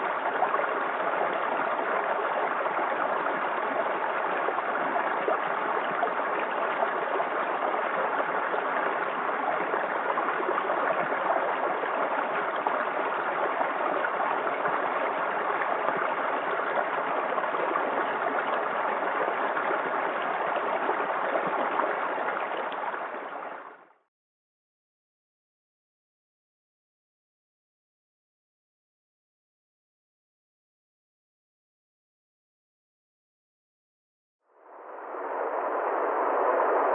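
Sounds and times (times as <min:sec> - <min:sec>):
stream water flowing: 0:00.0 - 0:23.9.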